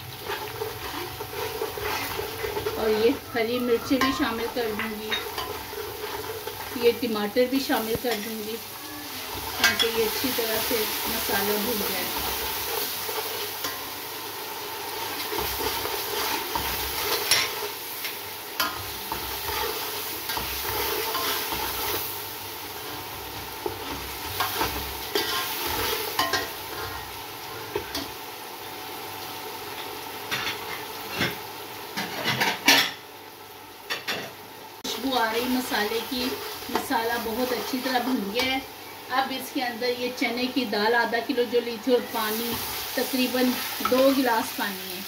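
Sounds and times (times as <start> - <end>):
food sizzling in oil: 0.0 - 45.0
metal spatula scraping pot: 0.2 - 6.8, 18.6 - 22.0.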